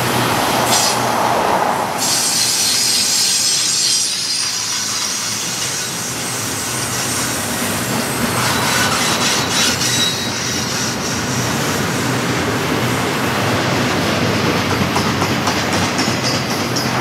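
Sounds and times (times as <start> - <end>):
train wheels rumbling on rails: 0.0 - 17.0
high-pitched wheel squeal: 2.0 - 7.4, 8.4 - 11.4.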